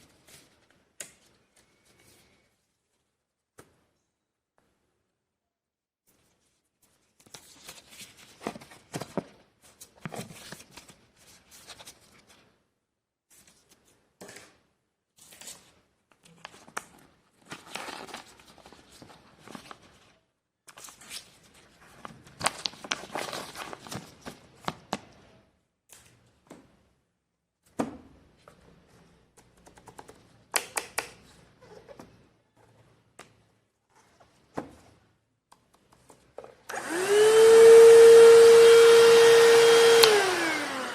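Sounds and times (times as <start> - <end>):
packaging rustling and crinkling: 16.3 - 20.2, 20.8 - 25.0.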